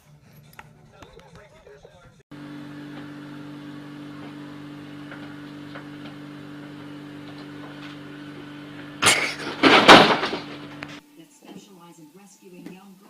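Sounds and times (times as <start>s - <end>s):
steady low hum: 2.3s - 11.0s.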